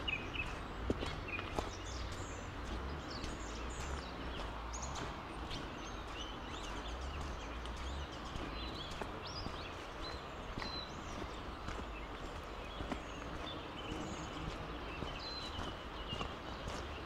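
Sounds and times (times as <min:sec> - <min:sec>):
low rumble: 0:00.0 - 0:10.2
small birds chirping: 0:00.0 - 0:17.0.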